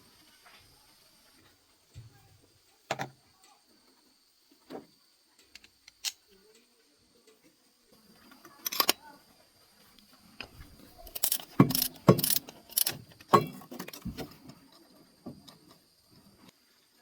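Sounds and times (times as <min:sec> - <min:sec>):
metal tools clinking and clanking: 0:08.4 - 0:09.0, 0:10.9 - 0:14.3.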